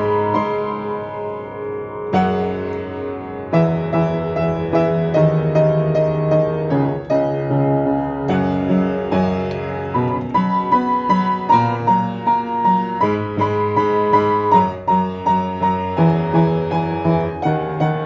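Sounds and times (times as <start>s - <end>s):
solo piano melody: 0.0s - 18.0s.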